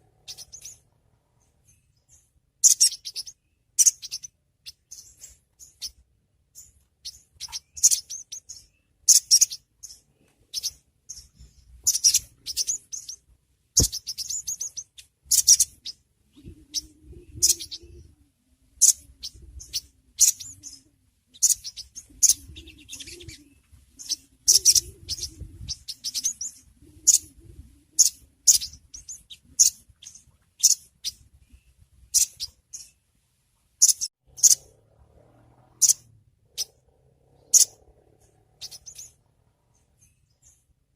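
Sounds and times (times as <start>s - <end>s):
bird calling in sharp chips: 2.6s - 6.0s, 6.6s - 13.2s, 13.8s - 16.0s.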